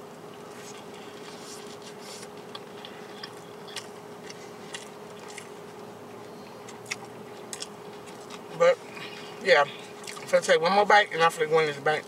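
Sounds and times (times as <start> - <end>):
faint hum: 0.0 - 12.0
person chewing: 0.5 - 5.8, 6.5 - 10.3.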